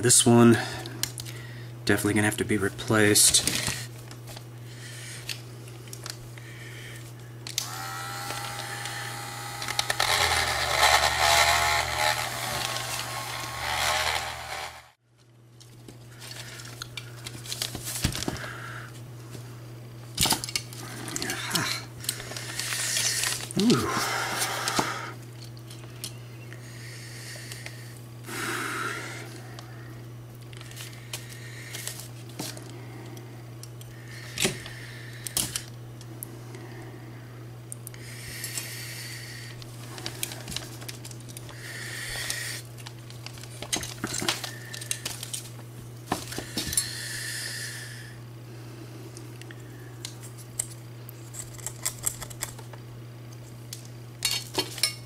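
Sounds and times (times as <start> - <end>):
low hum: 3.7 - 15.0.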